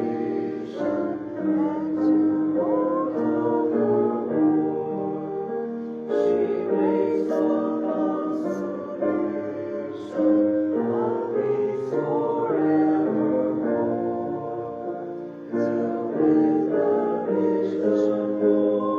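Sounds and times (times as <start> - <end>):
piano accompaniment: 0.0 - 18.9
voices singing a hymn: 0.0 - 18.9.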